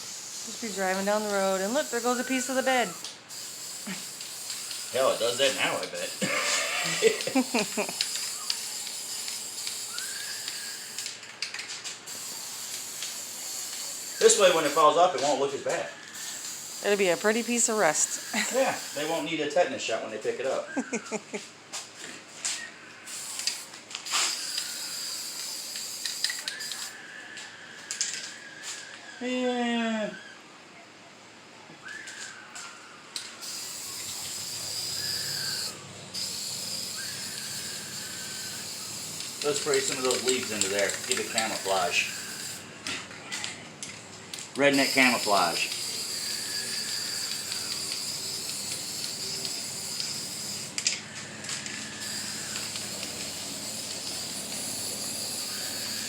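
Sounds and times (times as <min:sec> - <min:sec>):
spray paint hissing: 0:00.0 - 0:15.4, 0:16.1 - 0:19.3, 0:23.1 - 0:27.0, 0:33.2 - 0:42.9, 0:44.5 - 0:56.0.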